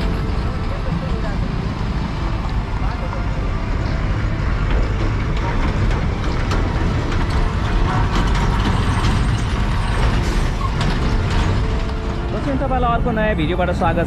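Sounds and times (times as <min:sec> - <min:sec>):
vehicle rumbling over dirt road: 0:00.0 - 0:14.0
rapid rattling and clicking: 0:04.3 - 0:13.3.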